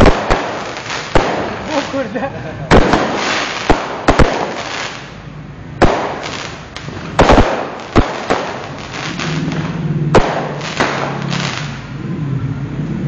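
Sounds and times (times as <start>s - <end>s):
fireworks bangs: 0.0s - 11.9s
fireworks crackling: 0.0s - 11.9s.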